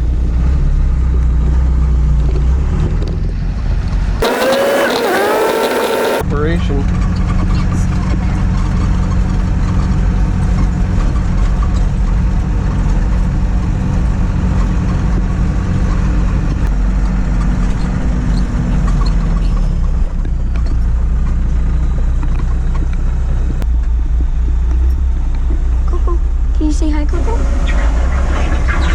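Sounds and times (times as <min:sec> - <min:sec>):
truck diesel engine droning: 0:00.9 - 0:07.2.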